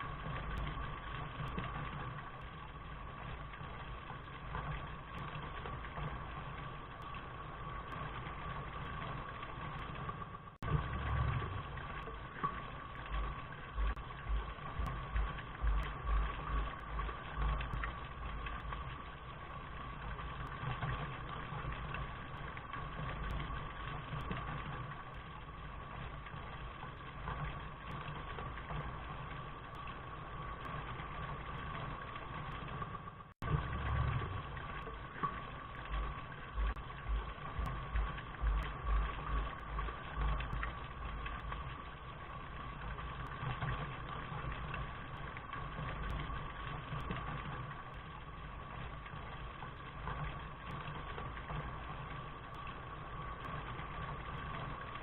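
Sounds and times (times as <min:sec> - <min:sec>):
low rumble: 0:00.0 - 0:21.0, 0:32.5 - 0:47.4
steady rain: 0:00.0 - 0:55.0.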